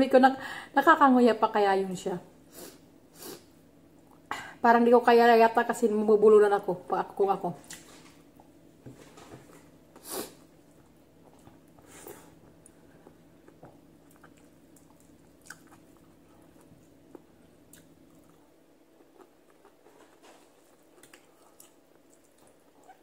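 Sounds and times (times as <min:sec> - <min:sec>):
low steady hum: 0:00.0 - 0:23.0
person chewing: 0:10.2 - 0:23.0.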